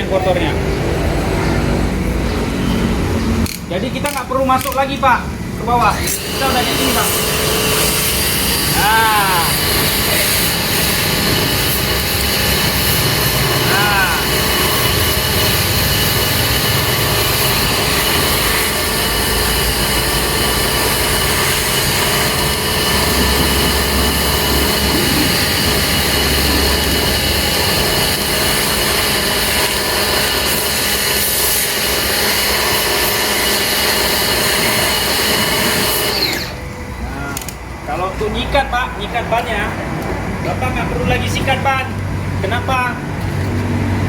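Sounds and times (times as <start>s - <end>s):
pressure washer machine whine: 5.8s - 38.1s
water jet spray hissing: 5.9s - 36.6s.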